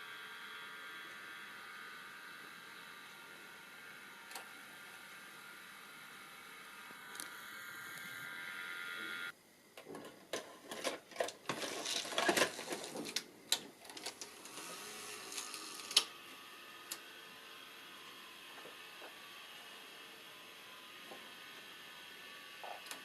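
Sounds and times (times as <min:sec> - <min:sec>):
small motor whining: 0:00.0 - 0:09.3, 0:14.1 - 0:23.0.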